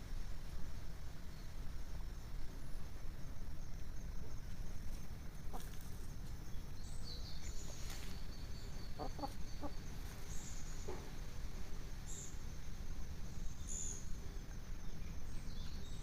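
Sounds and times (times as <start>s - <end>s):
hens clucking: 5.4s - 5.9s, 8.8s - 10.3s.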